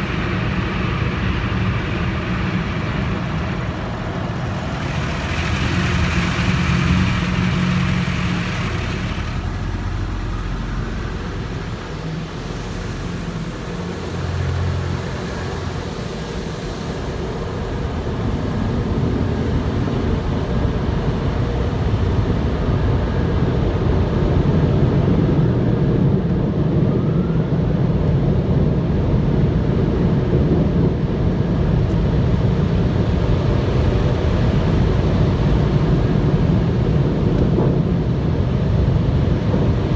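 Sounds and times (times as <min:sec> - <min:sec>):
car wash spray hissing: 0:00.0 - 0:22.0
car wash machinery drone: 0:00.0 - 0:39.9.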